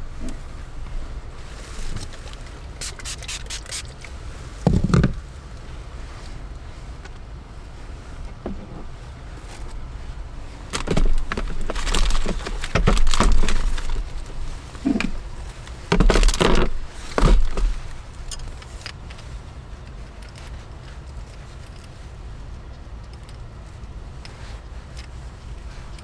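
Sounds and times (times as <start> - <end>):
rain hissing: 2.8 - 3.9.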